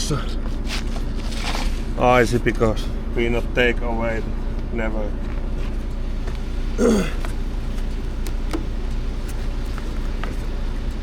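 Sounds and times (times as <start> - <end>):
diesel truck engine idling: 0.0 - 11.0
person grunting: 6.8 - 7.2.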